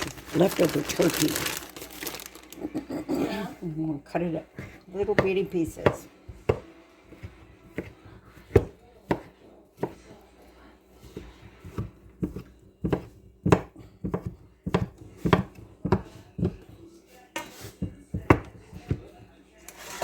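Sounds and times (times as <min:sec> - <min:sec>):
knife chopping on board: 0:04.5 - 0:10.2, 0:11.1 - 0:16.8, 0:17.4 - 0:19.2.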